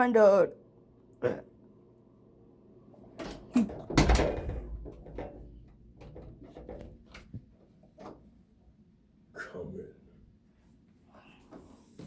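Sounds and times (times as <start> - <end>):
knocks and thumps: 3.2 - 8.2.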